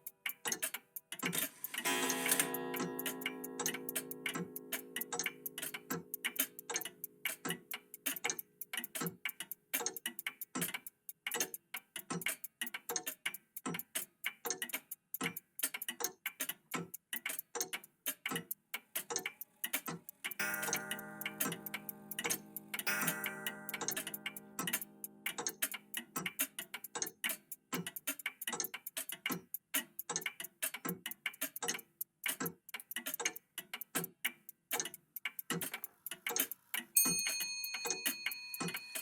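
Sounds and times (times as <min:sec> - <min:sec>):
mechanical clocks ticking: 0:00.0 - 0:39.0
chime-like ringing tone: 0:37.0 - 0:39.0.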